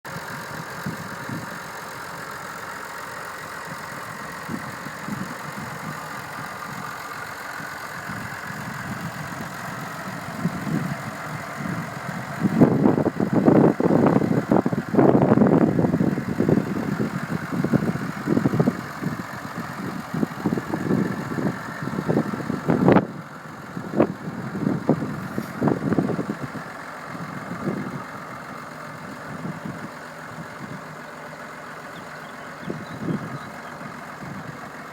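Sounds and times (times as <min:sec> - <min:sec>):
tractor diesel engine idling: 0:00.0 - 0:34.9.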